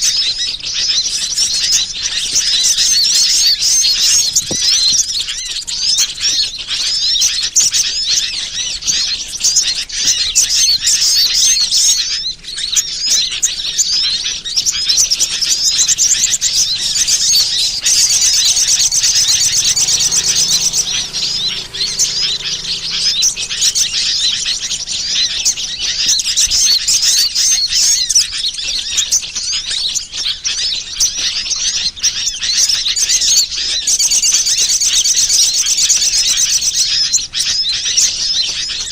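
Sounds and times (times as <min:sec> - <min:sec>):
small birds chirping: 0:00.0 - 0:38.9
fast bird trilling: 0:13.8 - 0:28.0.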